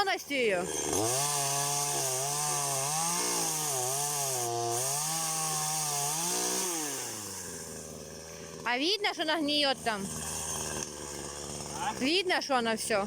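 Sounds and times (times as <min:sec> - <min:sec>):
chainsaw running: 0:00.0 - 0:13.0.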